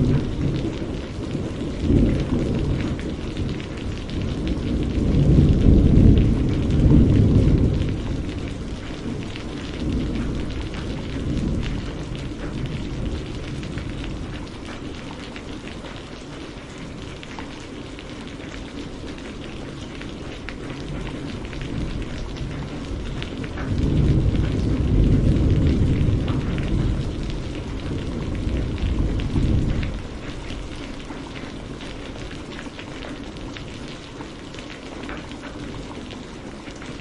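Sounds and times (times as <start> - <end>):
low thunder rumble: 0.0 - 15.1, 19.4 - 32.5
rain pattering: 0.0 - 37.0.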